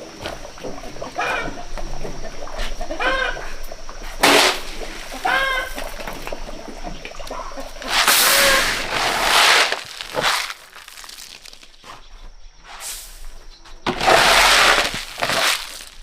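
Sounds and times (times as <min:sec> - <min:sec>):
dry corn rustling and crunching: 0:04.2 - 0:06.4, 0:07.6 - 0:11.8, 0:13.4 - 0:16.0.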